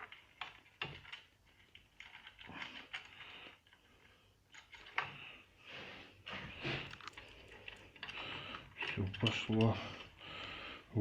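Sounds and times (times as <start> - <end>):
small metal parts clicking: 0.0 - 3.9, 4.5 - 5.2, 6.9 - 10.2.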